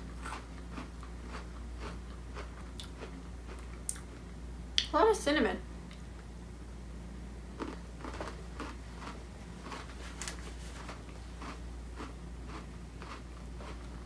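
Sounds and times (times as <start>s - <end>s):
person chewing crunchy cookie: 0.0s - 4.3s, 7.5s - 14.0s.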